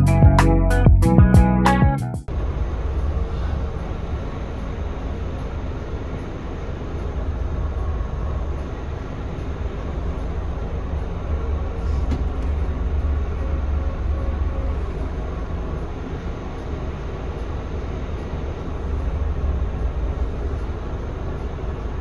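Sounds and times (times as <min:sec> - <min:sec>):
bus diesel engine droning: 0:02.3 - 0:22.0
road noise: 0:02.3 - 0:22.0.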